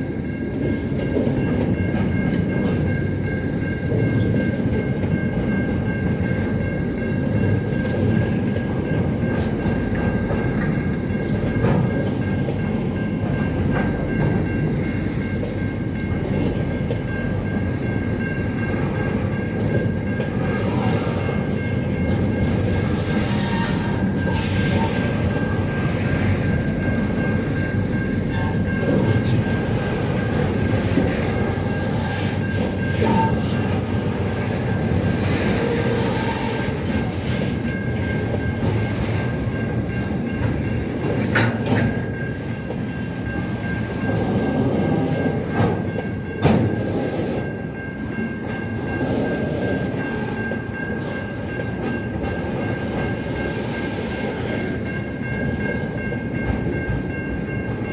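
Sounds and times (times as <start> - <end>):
rail clacks: 0.0 - 57.9
train rumbling on rails: 0.0 - 57.9.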